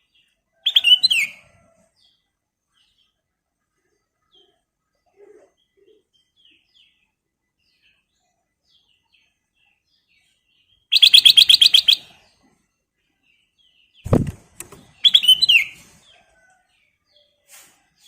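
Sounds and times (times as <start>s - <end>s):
faint bird chirps: 0.0s - 17.5s
low thump: 14.1s - 14.9s.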